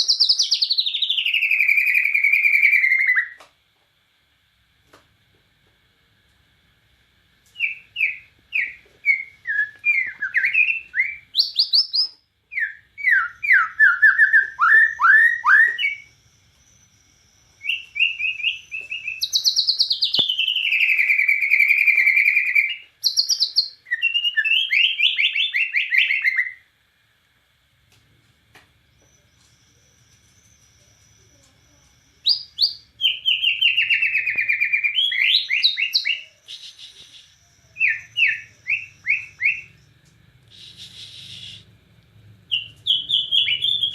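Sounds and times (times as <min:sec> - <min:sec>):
bird singing whistled song: 0:00.0 - 0:03.4, 0:07.6 - 0:26.6, 0:28.9 - 0:41.7, 0:42.5 - 0:43.9
bird fast trill: 0:07.6 - 0:26.6, 0:42.5 - 0:43.9.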